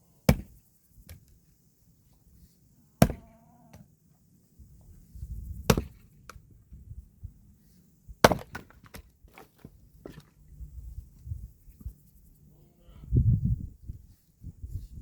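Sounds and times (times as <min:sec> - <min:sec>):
axe chopping firewood: 0:00.3 - 0:01.2, 0:03.0 - 0:03.8, 0:05.7 - 0:06.4, 0:08.2 - 0:10.3.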